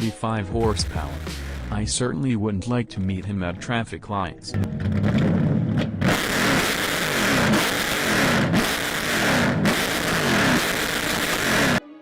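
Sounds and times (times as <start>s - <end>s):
car engine accelerating: 4.6s - 11.8s.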